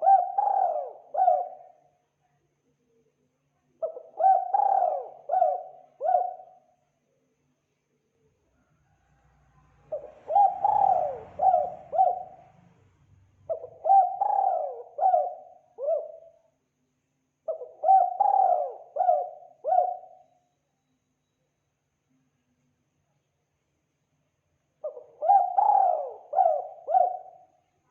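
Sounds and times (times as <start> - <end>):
dove cooing: 0.0 - 1.8, 3.8 - 6.6, 9.8 - 12.6, 13.5 - 16.4, 17.5 - 20.2, 24.8 - 27.5.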